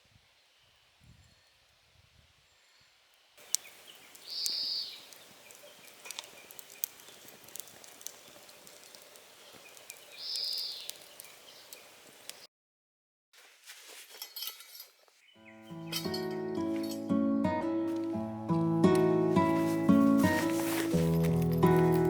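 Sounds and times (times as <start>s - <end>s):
small ticks and clicks: 3.4s - 12.4s
short high bird calls: 3.5s - 5.9s.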